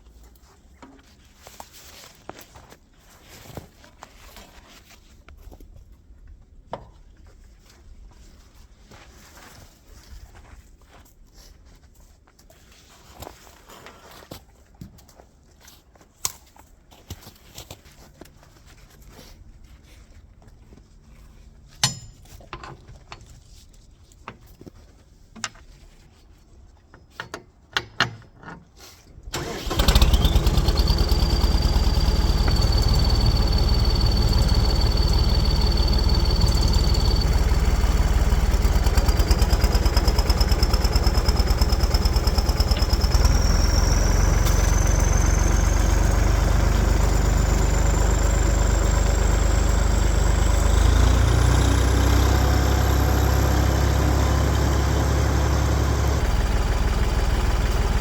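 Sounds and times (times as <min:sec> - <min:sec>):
tractor engine running: 0:29.3 - 0:58.0.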